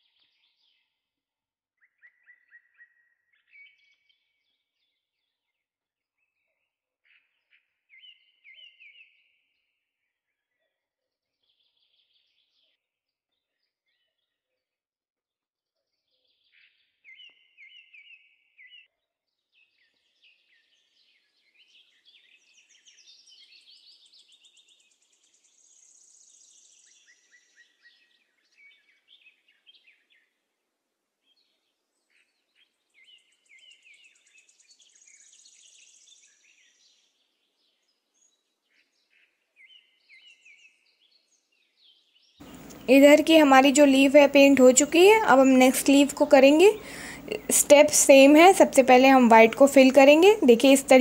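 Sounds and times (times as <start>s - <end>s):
faint birdsong chirps and trills: 0.0s - 1.2s, 1.8s - 14.7s, 15.8s - 30.5s, 31.2s - 51.0s.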